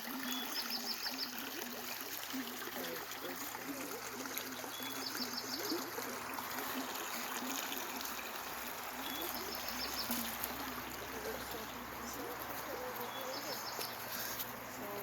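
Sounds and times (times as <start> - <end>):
small stream trickling: 0.0 - 15.0
bird singing: 0.2 - 1.4, 4.6 - 6.1, 7.8 - 14.1.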